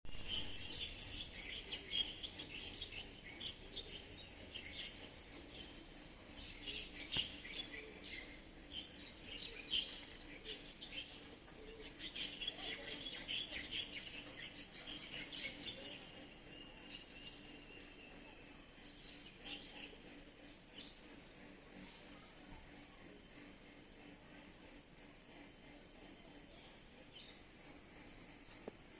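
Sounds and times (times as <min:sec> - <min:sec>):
small birds chirping: 0:00.1 - 0:28.9.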